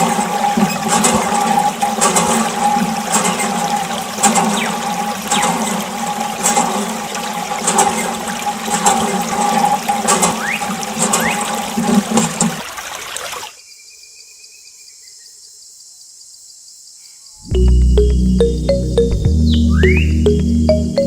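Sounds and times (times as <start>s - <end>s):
pump motor hum: 0.0s - 13.2s
water gushing and splashing: 0.0s - 13.6s.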